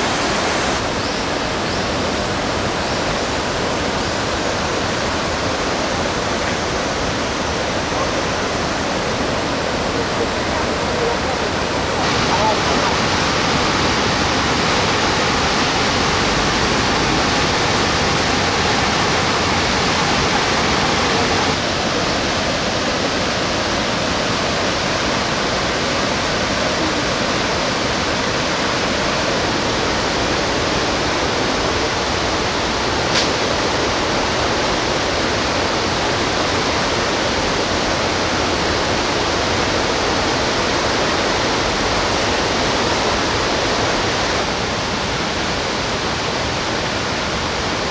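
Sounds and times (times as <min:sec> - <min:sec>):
stream rushing over rocks: 0:00.0 - 0:47.9
short click: 0:33.1 - 0:33.4.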